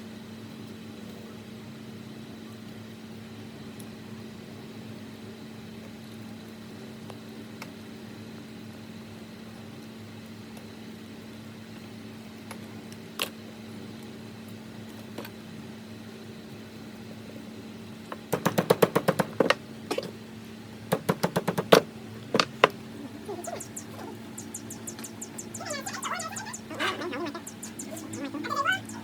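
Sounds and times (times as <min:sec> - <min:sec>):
steady low hum: 0:15.6 - 0:29.0
rapid sharp knocks: 0:18.3 - 0:19.6, 0:20.9 - 0:21.8.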